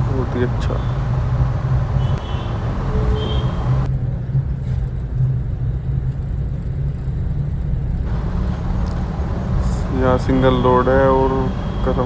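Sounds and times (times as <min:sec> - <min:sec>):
vehicle driving rumble: 0:00.0 - 0:05.0, 0:07.8 - 0:12.0.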